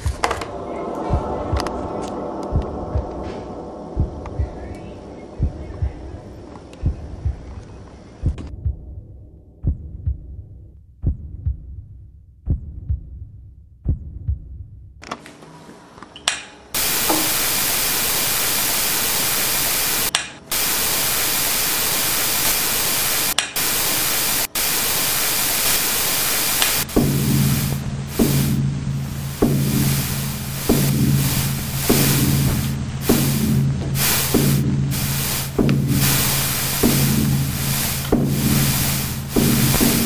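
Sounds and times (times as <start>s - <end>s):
heartbeat-like double thumps: 0.0s - 7.6s, 8.2s - 15.0s, 26.6s - 40.0s
low hum: 0.0s - 11.7s, 16.8s - 40.0s
television static hiss: 16.8s - 33.4s, 34.0s - 40.0s.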